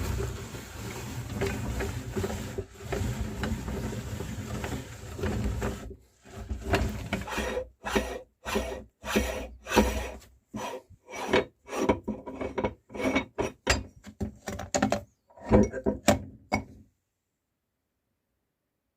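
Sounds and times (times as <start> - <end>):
meat grinder crushing cookies: 0.0 - 10.2.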